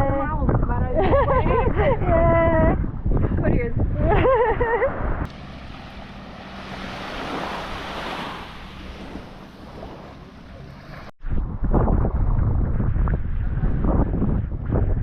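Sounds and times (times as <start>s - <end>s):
wind on microphone: 0.0s - 15.0s
waves washing on beach: 5.3s - 11.1s.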